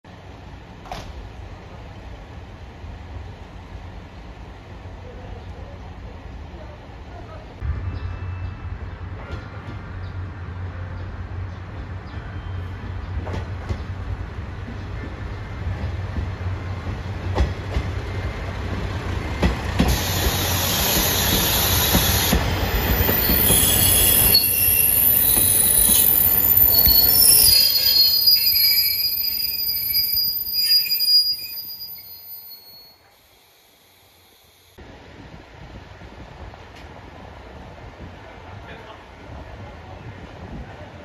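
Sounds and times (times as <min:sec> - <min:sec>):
diesel train engine and rail rumble: 0:00.1 - 0:41.0
train wheels squealing: 0:07.7 - 0:09.7, 0:12.0 - 0:13.8, 0:19.9 - 0:33.6.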